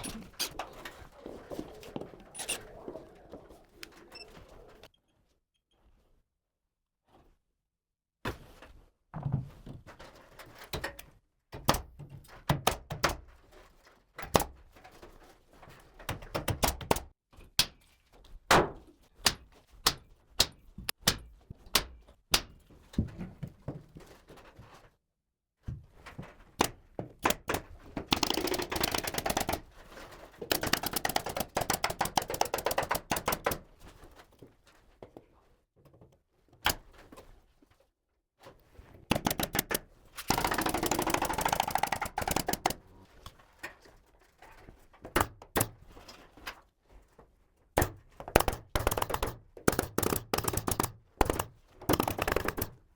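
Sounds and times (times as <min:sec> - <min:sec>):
nail gun shots: 0:47.8 - 0:52.8.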